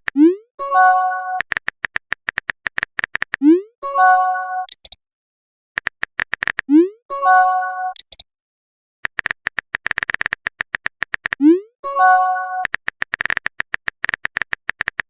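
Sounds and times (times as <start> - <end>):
keyboard tap clicks: 1.4 - 3.4, 9.1 - 11.4, 12.6 - 15.0.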